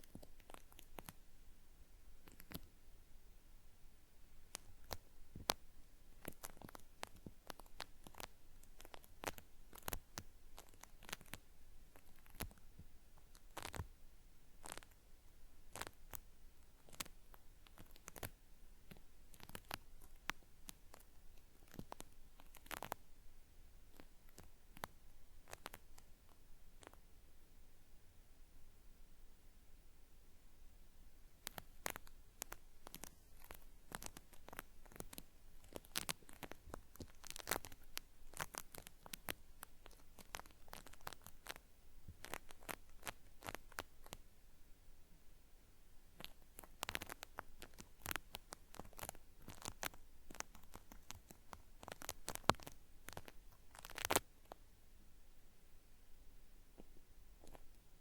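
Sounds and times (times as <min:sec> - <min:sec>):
cotton swab scraping in ear: 0:06.2 - 0:12.6, 0:13.3 - 0:13.9, 0:16.8 - 0:23.1, 0:31.5 - 0:44.2, 0:46.2 - 0:54.6.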